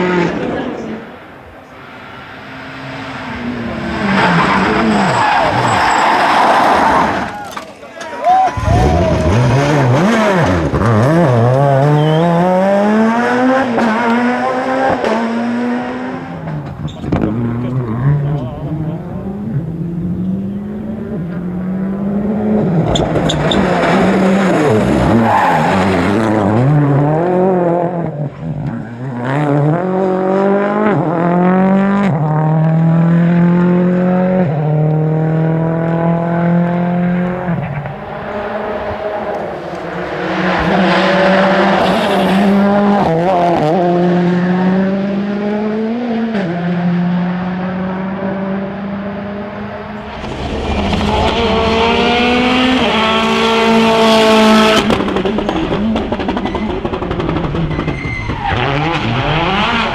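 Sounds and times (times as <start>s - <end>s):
rally car engines revving: 0.0s - 7.7s, 8.5s - 59.9s
tyre noise: 16.3s - 26.7s.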